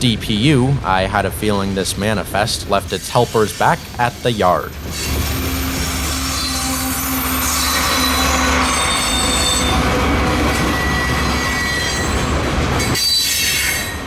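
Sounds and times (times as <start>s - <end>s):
freight cars rolling: 0.0s - 14.0s
low drone: 0.8s - 11.6s
train wheels squealing: 2.9s - 14.0s.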